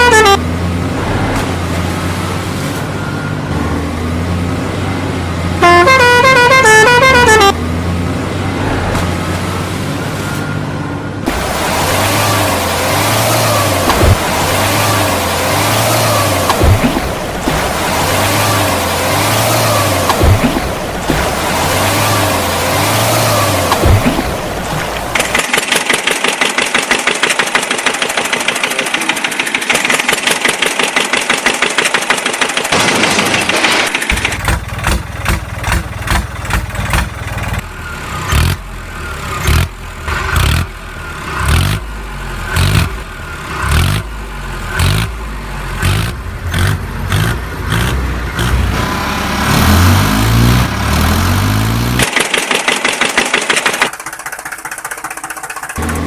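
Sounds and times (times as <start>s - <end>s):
deep engine revving: 11.2s - 25.3s, 39.3s - 52.1s
fast engine rattle: 23.6s - 37.7s, 51.9s - 56.0s.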